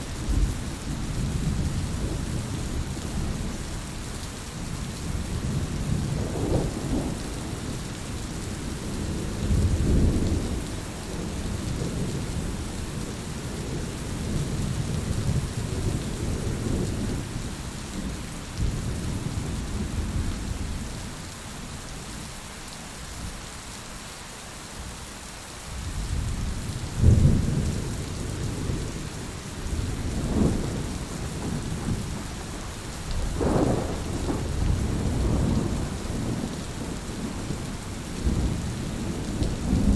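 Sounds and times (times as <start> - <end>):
steady rain hissing: 0.0 - 39.9
thunder rumbling: 26.0 - 39.9.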